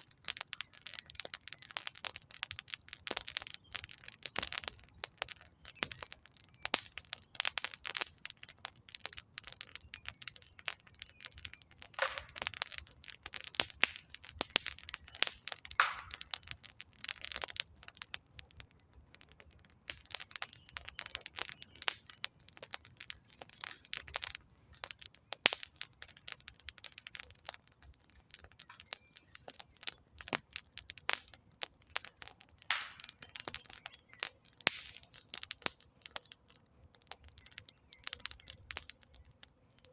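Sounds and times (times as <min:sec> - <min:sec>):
campfire crackling and popping: 0:00.0 - 0:39.9
hissing fire flare-ups: 0:11.1 - 0:17.0, 0:20.2 - 0:39.9.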